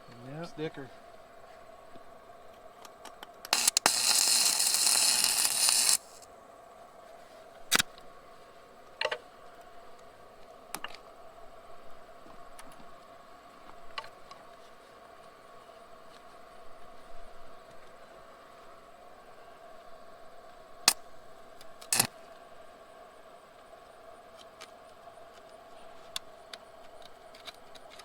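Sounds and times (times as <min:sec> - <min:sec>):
sharp clicks: 0:03.5 - 0:06.2, 0:21.8 - 0:22.1
electric welding arc crackling: 0:03.5 - 0:06.3.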